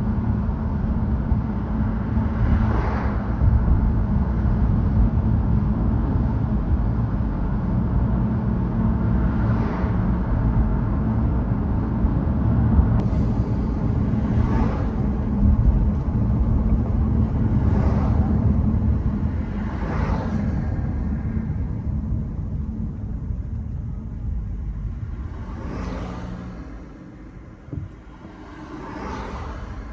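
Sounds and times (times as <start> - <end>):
car engine and tyre rumble: 0.0 - 29.9
swells of louder noise: 2.0 - 29.9.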